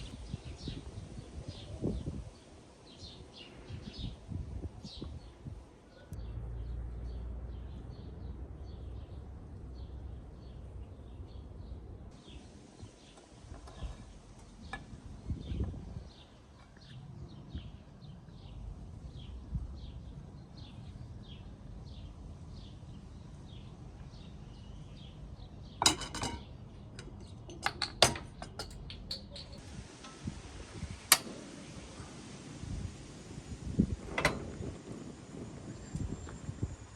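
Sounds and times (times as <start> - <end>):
utensils clinking against dishes: 25.8 - 30.3.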